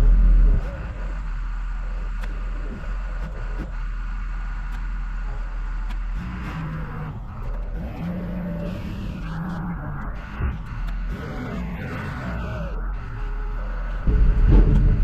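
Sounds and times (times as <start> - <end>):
low hum coming and going: 0.0 - 15.0
heavy vehicle engine rumbling: 13.9 - 15.0.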